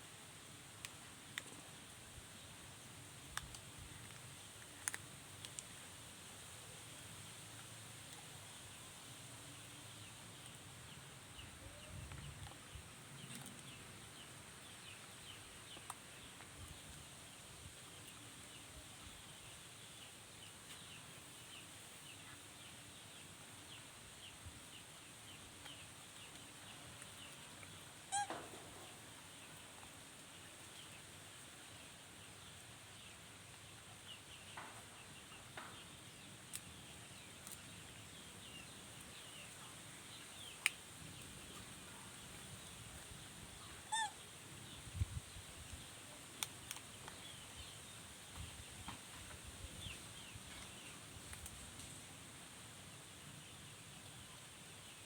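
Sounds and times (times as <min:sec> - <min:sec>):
animal call: 0:28.1 - 0:28.5, 0:43.8 - 0:44.2
small bird chirps: 0:28.1 - 0:28.5, 0:43.6 - 0:44.8.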